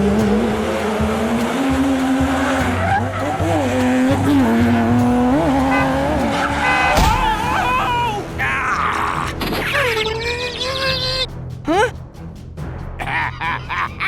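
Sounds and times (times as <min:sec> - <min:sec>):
vehicle engine revving: 0:00.0 - 0:08.4
tyre squeal: 0:05.7 - 0:11.3.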